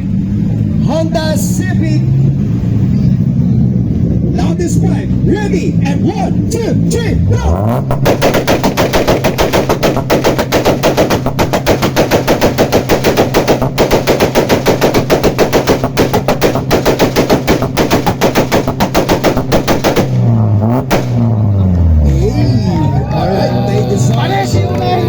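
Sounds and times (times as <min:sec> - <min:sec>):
car engine on rev limiter: 0:02.0 - 0:08.7, 0:19.4 - 0:25.0
exhaust rapid bangs: 0:04.2 - 0:22.4.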